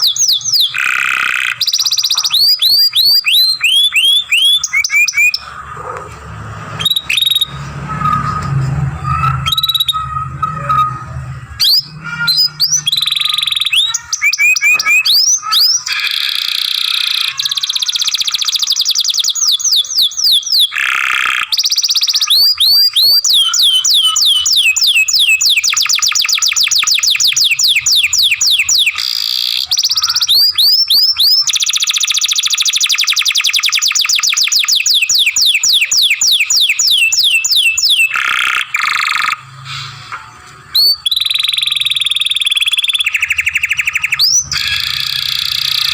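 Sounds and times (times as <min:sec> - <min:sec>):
canary singing: 0:00.0 - 0:39.6, 0:40.3 - 0:45.9
low hum: 0:05.4 - 0:13.0.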